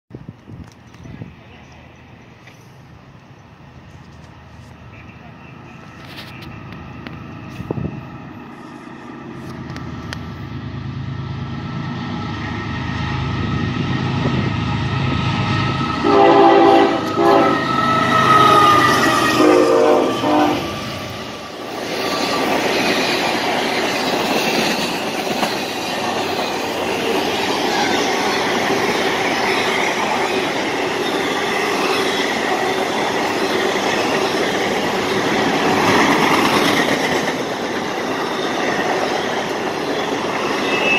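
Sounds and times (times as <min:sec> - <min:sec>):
diesel locomotive rumble: 0:00.2 - 0:40.9
train air horn blasts: 0:16.0 - 0:21.0.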